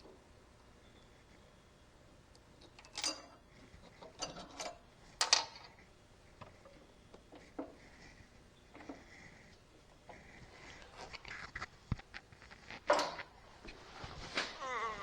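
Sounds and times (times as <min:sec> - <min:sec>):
clicks and knocks of tools and parts: 0:02.6 - 0:05.8, 0:11.6 - 0:13.3.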